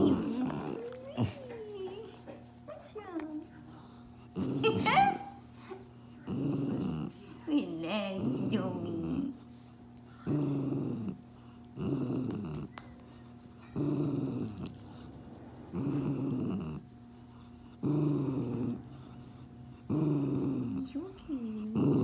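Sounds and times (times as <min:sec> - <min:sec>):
dog growling: 0:00.0 - 0:02.2, 0:04.3 - 0:05.4, 0:06.2 - 0:09.5, 0:10.2 - 0:12.8, 0:13.6 - 0:22.0.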